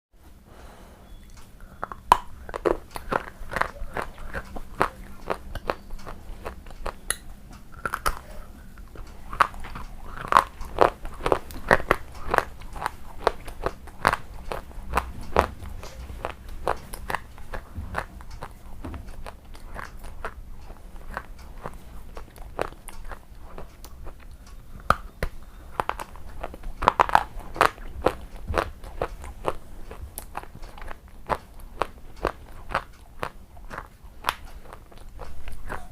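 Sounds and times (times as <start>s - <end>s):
person chewing crunchy food: 1.0s - 35.9s.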